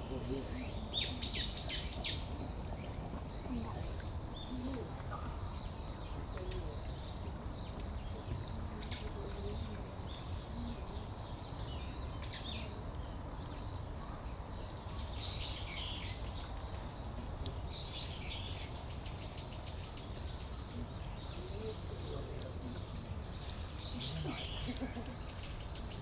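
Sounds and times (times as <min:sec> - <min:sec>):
insects chirring: 0:00.0 - 0:04.0.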